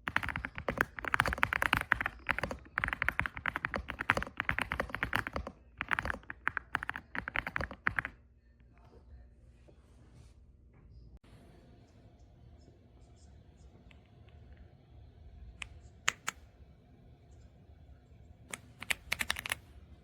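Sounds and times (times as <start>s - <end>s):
mechanical keyboard typing: 0.0s - 8.2s, 18.5s - 19.6s.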